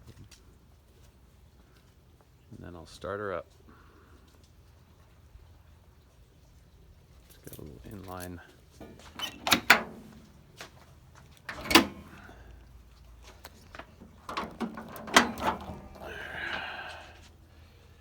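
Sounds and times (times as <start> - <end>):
metal hood clunks and knocks: 8.8 - 10.7, 11.4 - 12.3, 13.7 - 16.6
rattling scrape: 11.5 - 12.3, 13.6 - 16.6.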